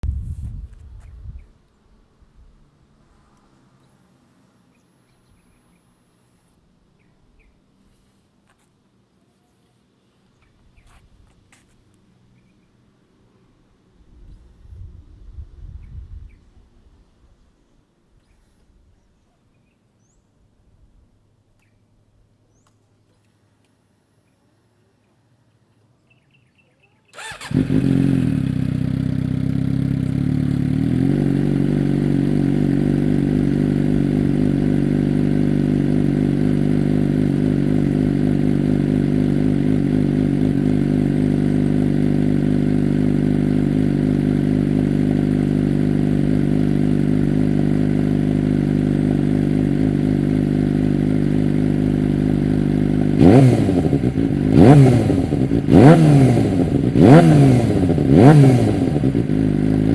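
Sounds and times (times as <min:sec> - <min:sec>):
engine throttle blips: 0:27.2 - 0:59.9
motorcycle engine idling: 0:27.2 - 0:59.9.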